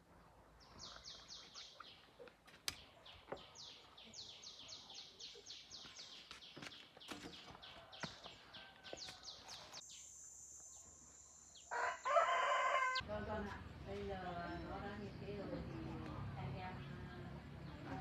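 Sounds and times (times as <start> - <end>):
bird chirping: 0.6 - 12.2.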